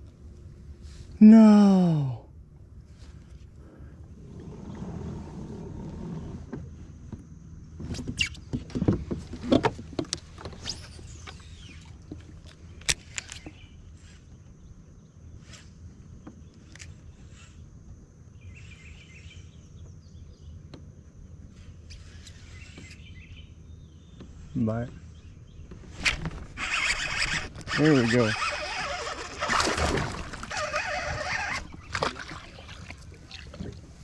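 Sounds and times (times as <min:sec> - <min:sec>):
boat rumbling on water: 0:02.3 - 0:34.0.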